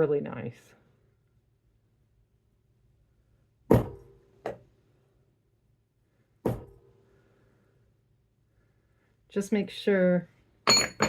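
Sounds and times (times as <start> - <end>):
hammer striking metal stamp: 10.7 - 11.0.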